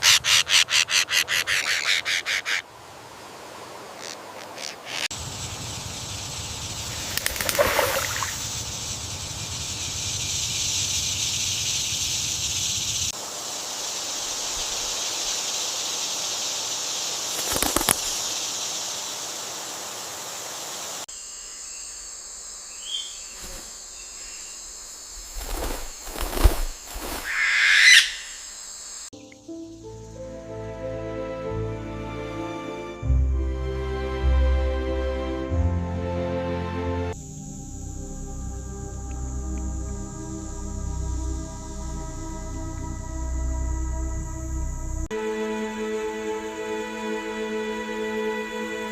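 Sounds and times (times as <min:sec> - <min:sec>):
bird calls: 0:00.0 - 0:02.7, 0:03.9 - 0:13.2, 0:22.7 - 0:24.6, 0:25.4 - 0:28.6
insects hissing: 0:00.0 - 0:33.8, 0:37.1 - 0:48.9.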